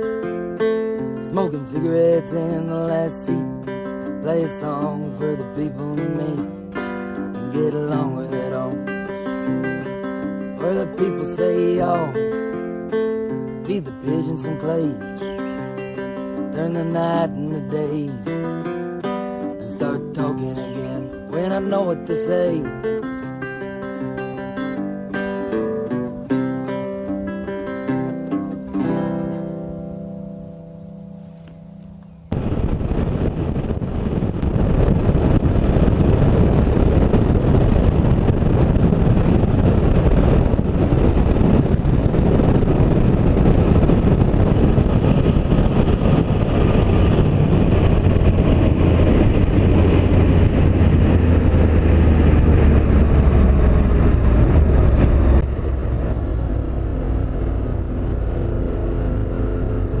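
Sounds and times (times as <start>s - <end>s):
wind and road noise: 28.8s - 60.0s
motorcycle engine: 43.0s - 60.0s.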